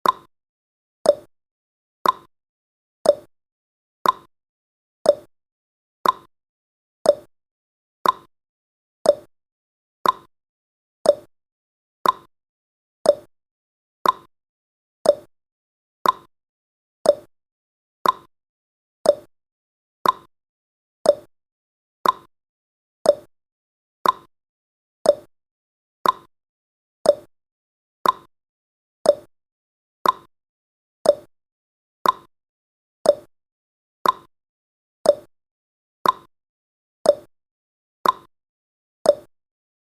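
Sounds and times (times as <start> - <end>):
clock tick-tock: 0.0 - 0.3, 1.0 - 1.3, 2.0 - 2.3, 3.0 - 3.3, 4.0 - 4.3, 5.0 - 5.3, 6.0 - 6.3, 7.0 - 7.3, 8.0 - 8.3, 9.0 - 9.3, 10.0 - 10.3, 11.0 - 11.3, 12.0 - 12.3, 13.0 - 13.3, 14.0 - 14.3, 15.0 - 15.3, 16.0 - 16.3, 17.0 - 17.3, 18.0 - 18.3, 19.0 - 19.3, 20.0 - 20.3, 21.0 - 21.3, 22.0 - 22.3, 23.0 - 23.3, 24.0 - 24.3, 25.0 - 25.3, 26.0 - 26.3, 27.0 - 27.3, 28.0 - 28.3, 29.0 - 29.3, 30.0 - 30.3, 31.0 - 31.3, 32.0 - 32.3, 33.0 - 33.3, 34.0 - 34.3, 35.0 - 35.3, 36.0 - 36.3, 37.0 - 37.3, 38.0 - 38.3, 39.0 - 39.4.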